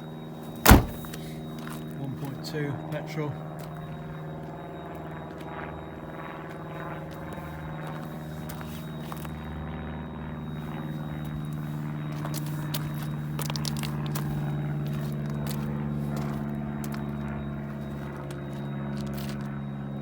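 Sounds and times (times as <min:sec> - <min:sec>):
car engine idling: 0:00.7 - 0:01.1.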